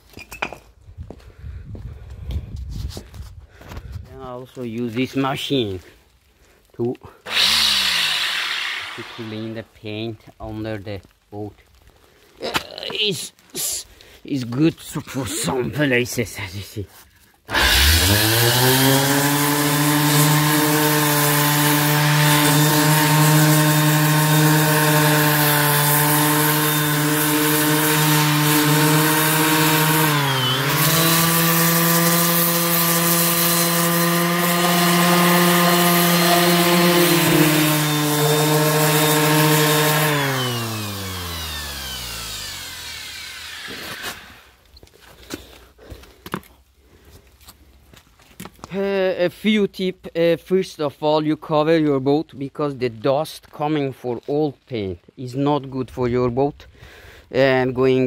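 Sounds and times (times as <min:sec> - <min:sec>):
orbital sander running: 0:07.3 - 0:09.4, 0:17.5 - 0:44.6.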